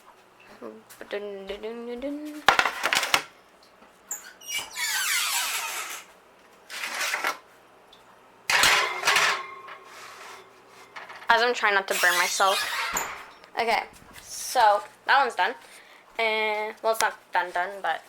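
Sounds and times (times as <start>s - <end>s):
metallic clatter: 8.5s - 11.4s
metal tray scraping oven rack: 8.5s - 13.4s.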